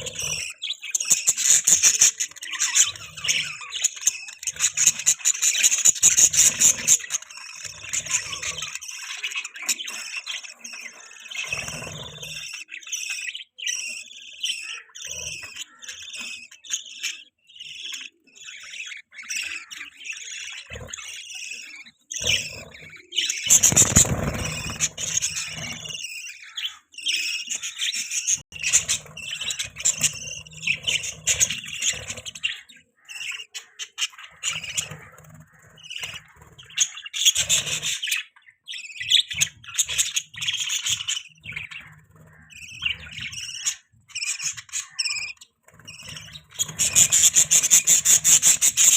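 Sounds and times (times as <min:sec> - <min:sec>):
budgerigars chirping: 0:00.0 - 0:48.9.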